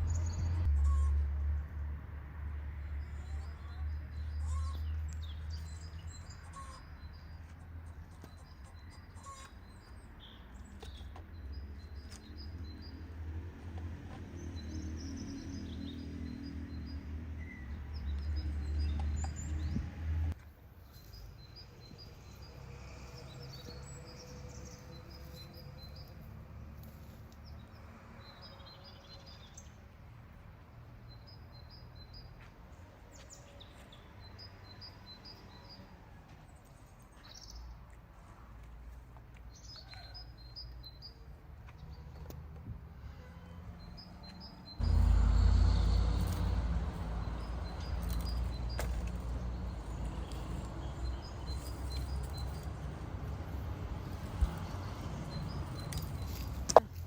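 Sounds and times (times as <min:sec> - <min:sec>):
small birds chirping: 0:02.9 - 0:13.2, 0:43.8 - 0:57.0.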